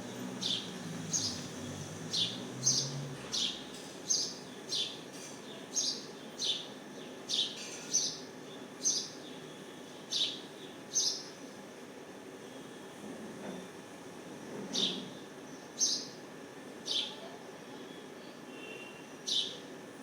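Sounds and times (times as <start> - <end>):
small bird chirping: 0.4 - 5.0.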